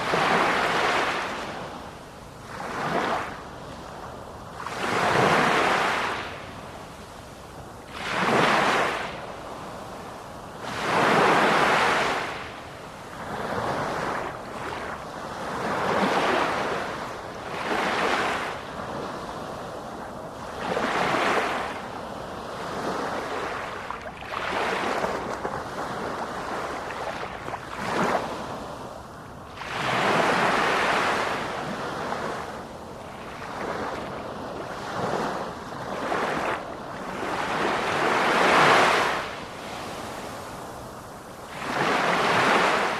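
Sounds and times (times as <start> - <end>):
sea waves breaking: 0.0 - 1.8, 4.6 - 6.8, 7.9 - 10.0, 22.6 - 42.9.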